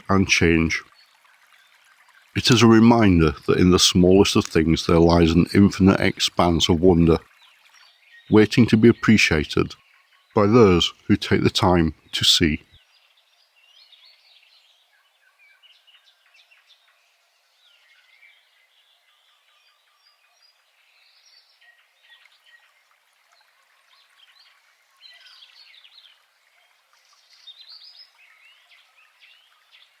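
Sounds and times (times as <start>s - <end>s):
birds chirping and trilling: 0.0s - 22.7s.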